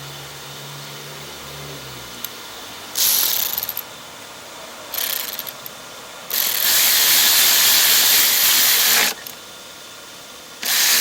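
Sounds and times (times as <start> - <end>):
power tool whining: 6.3 - 9.4, 10.6 - 11.0.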